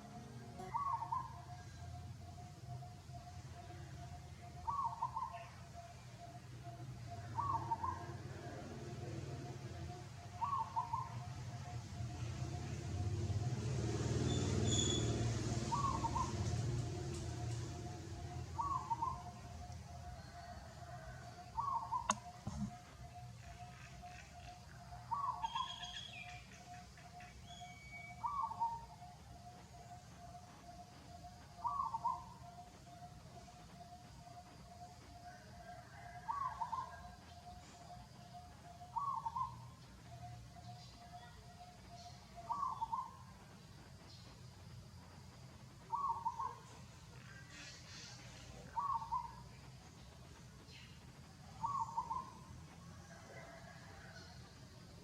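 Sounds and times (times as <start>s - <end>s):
higher bird chirps: 0.0s - 2.1s
bird calling wavering notes: 0.0s - 8.1s, 17.4s - 19.7s.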